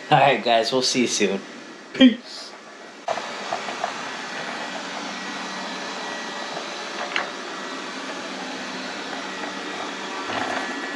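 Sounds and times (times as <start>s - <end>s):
robot vacuum whirring: 3.1s - 10.9s.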